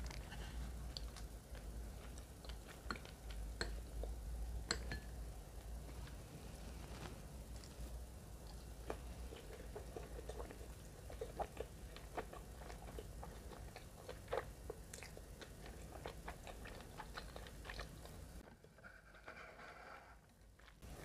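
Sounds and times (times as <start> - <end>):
chewing food with wet crunches: 0.0 - 4.9, 7.5 - 18.4.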